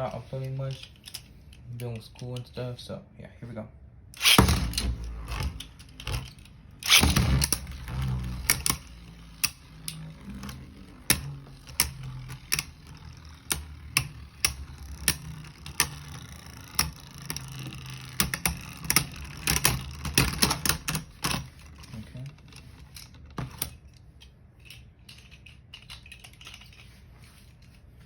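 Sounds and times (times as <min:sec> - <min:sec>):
spinning tops clashing: 0:04.2 - 0:20.9
spinning tops whirring: 0:04.2 - 0:23.2.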